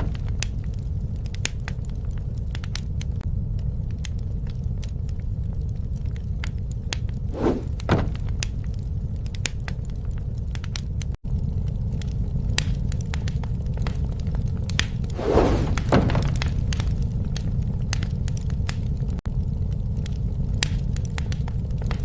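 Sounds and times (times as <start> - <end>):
wood fire crackling: 0.0 - 22.0
rushing noise: 7.3 - 7.7, 15.1 - 16.0.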